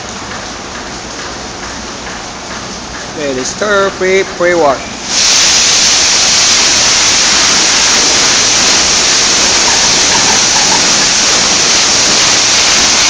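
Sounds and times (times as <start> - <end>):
high-pressure water jets spraying: 1.7 - 13.0.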